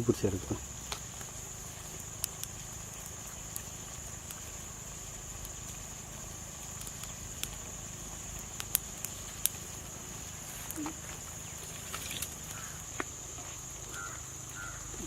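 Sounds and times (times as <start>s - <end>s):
insects chirring: 0.0s - 15.0s
sharp clicks: 2.0s - 4.5s, 8.5s - 9.6s.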